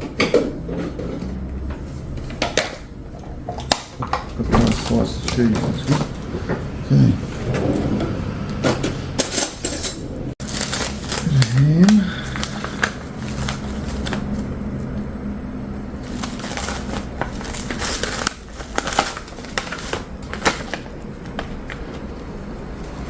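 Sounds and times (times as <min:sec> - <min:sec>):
crinkling: 0:10.4 - 0:15.0, 0:15.9 - 0:23.0.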